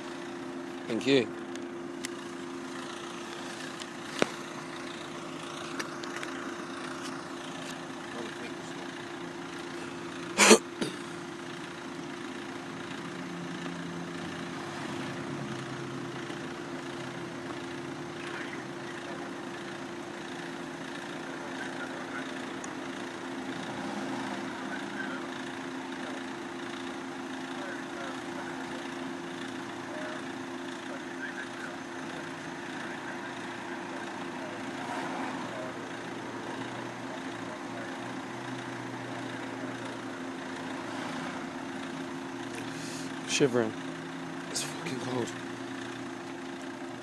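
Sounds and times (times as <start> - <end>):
car engine idling: 0.0 - 47.0.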